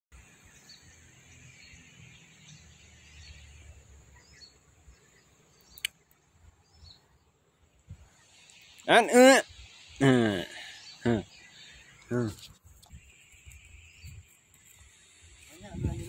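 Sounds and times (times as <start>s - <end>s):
bird chirps: 0.2s - 7.3s, 8.0s - 16.0s
insect buzz: 0.2s - 16.0s.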